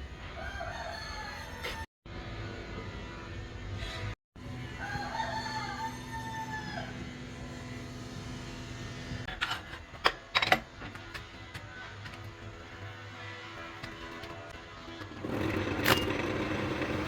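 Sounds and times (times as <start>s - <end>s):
rooster crowing: 0.4s - 1.8s, 4.7s - 7.2s.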